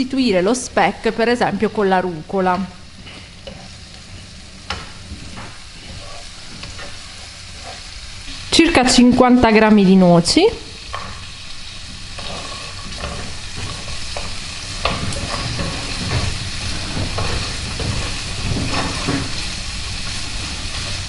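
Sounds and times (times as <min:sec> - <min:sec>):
food sizzling in oil: 0:00.0 - 0:21.0
wooden spatula scraping a pan: 0:02.8 - 0:09.3, 0:10.8 - 0:21.0.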